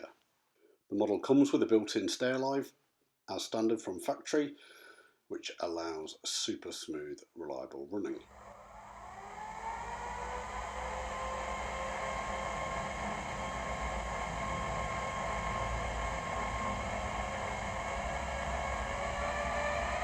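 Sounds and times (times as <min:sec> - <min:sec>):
diesel locomotive engine through speaker: 0:09.2 - 0:20.0.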